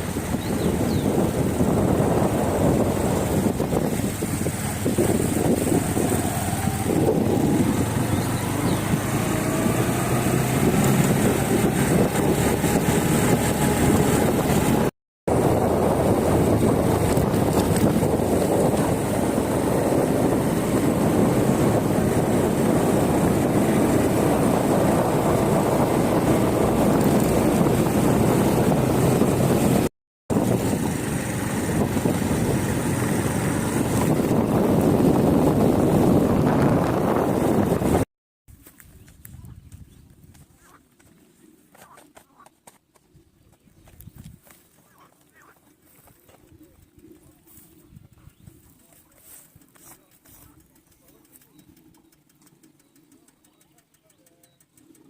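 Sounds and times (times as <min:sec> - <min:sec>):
road rolling noise: 0:00.0 - 0:38.1
wind rushing over microphone: 0:00.0 - 0:38.1.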